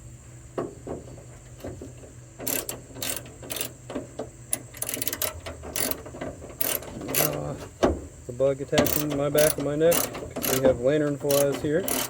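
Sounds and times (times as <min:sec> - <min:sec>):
ratchet wrench clicking: 0:02.4 - 0:07.5, 0:08.8 - 0:12.0.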